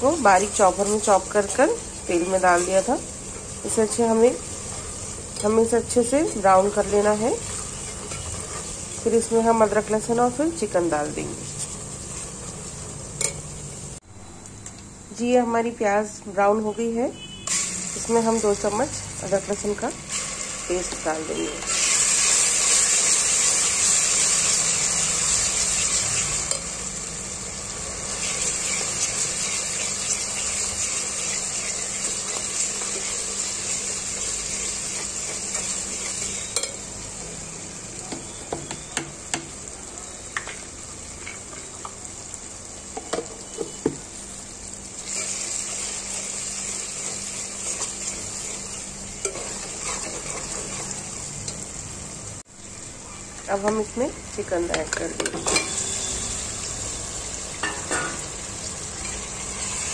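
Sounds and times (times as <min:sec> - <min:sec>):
onions sizzling in hot oil: 0:00.0 - 0:59.9
steel spoon scraping a pot: 0:07.4 - 0:09.1, 0:34.5 - 0:36.8, 0:47.6 - 0:51.0.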